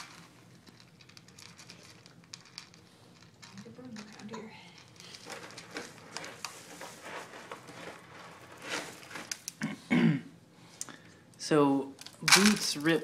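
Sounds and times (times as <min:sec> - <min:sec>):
pet food bag crinkling: 0:05.0 - 0:09.6.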